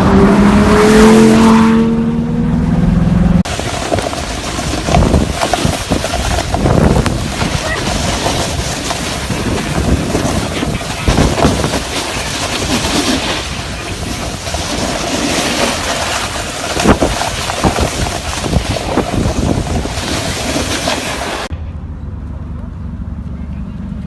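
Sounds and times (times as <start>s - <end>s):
car engine driven hard: 0.0s - 13.3s
tyre noise: 3.4s - 21.5s
wind buffeting on microphone: 3.4s - 21.5s.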